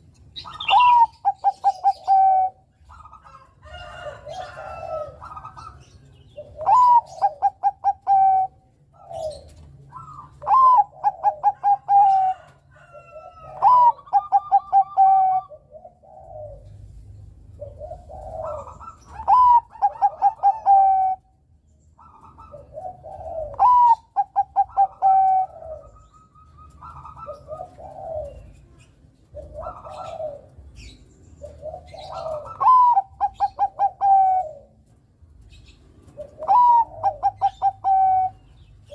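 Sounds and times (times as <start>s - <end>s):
dove cooing: 0.0s - 21.4s, 22.0s - 38.9s.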